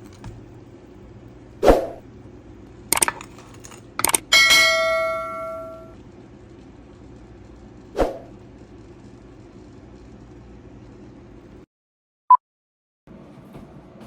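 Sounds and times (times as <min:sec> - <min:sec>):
metal strike ringing like a bell: 0:04.3 - 0:06.0.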